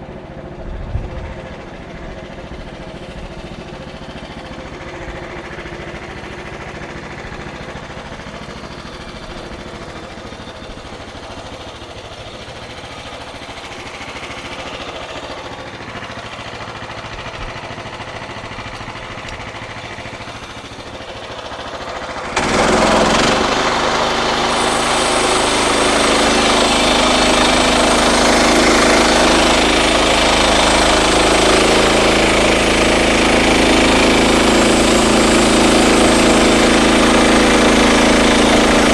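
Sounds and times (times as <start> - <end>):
bandsaw mill running: 8.2 - 38.9
band blade cutting log: 22.2 - 38.9.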